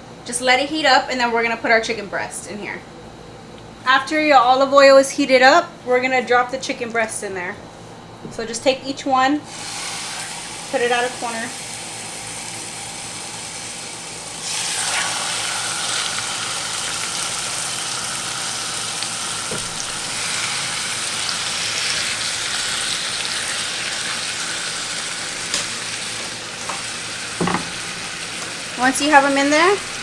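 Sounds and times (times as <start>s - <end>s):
chicken sizzling in oil: 9.5s - 30.0s
pan knocking: 27.4s - 29.9s.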